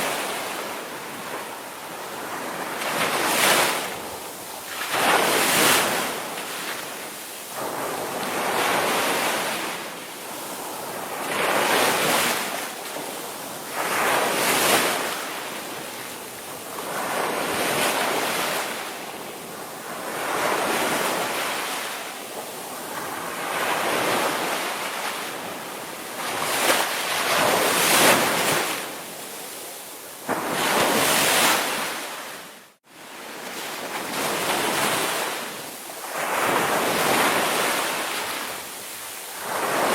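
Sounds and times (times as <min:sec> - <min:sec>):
ocean surf breaking: 0:30.2 - 0:39.9.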